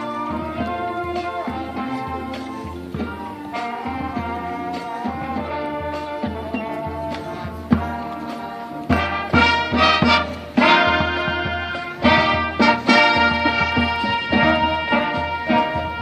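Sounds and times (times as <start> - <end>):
brass sustained chords: 0.0 - 16.0
marching band playing: 0.0 - 16.0
percussion: 0.0 - 16.0.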